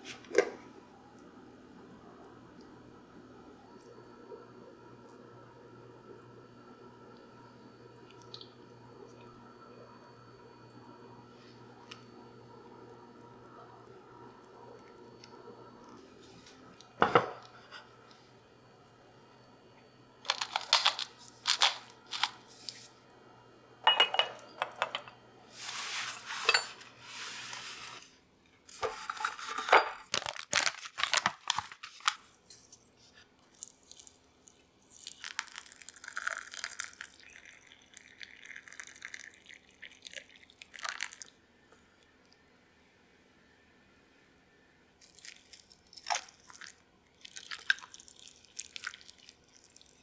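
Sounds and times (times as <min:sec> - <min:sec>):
dishes clicking and knocking: 0:17.0 - 0:17.6, 0:23.9 - 0:25.2, 0:28.8 - 0:30.3
packaging rustling and tearing: 0:20.3 - 0:22.8, 0:28.9 - 0:32.4.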